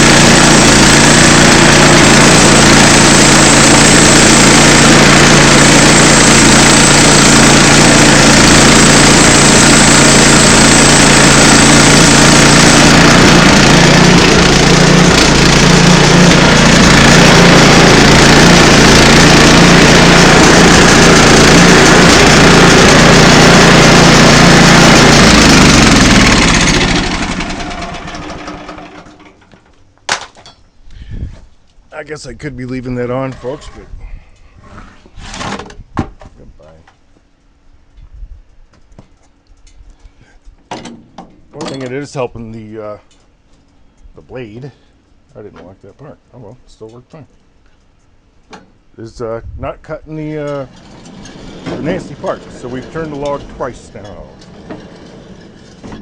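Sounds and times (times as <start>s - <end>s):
log saw engine cutting wood: 0.0s - 29.3s, 50.3s - 56.0s.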